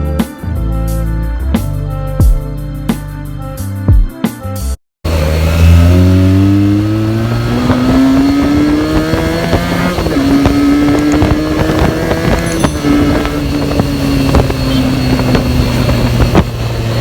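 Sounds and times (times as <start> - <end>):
motorcycle engine revving: 5.0 - 17.0.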